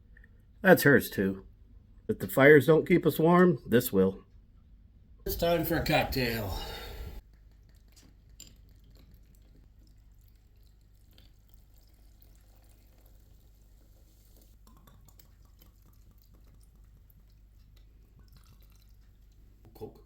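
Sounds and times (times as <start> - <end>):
low steady hum: 4.3 - 7.2
liquid poured into glass: 6.6 - 19.4.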